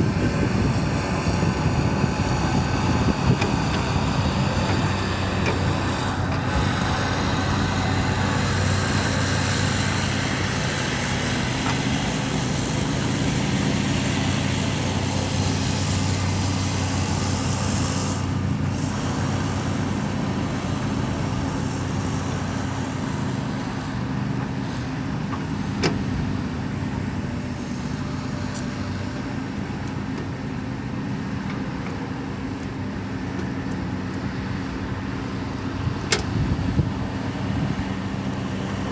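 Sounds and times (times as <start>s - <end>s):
diesel machinery engine running: 0.0s - 38.9s.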